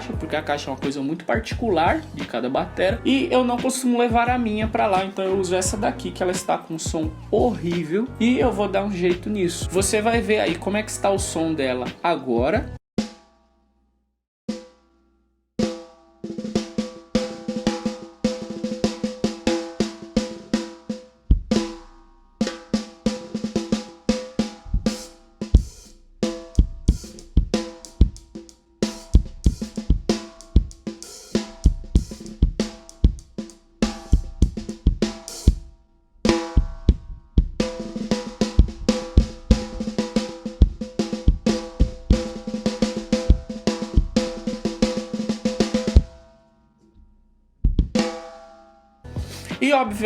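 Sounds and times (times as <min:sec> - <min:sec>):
kick drum thumps: 0:00.1 - 0:00.4, 0:04.1 - 0:04.9, 0:21.3 - 0:21.9, 0:24.6 - 0:46.2, 0:47.6 - 0:48.2
snare drum rolls with ringing overtones: 0:15.6 - 0:35.7, 0:36.3 - 0:37.0, 0:37.6 - 0:46.3, 0:47.9 - 0:48.4.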